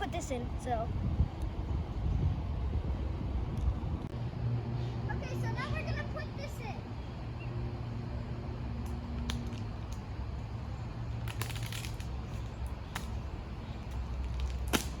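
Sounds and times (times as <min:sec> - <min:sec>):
wind rumbling on microphone: 0:00.0 - 0:04.2.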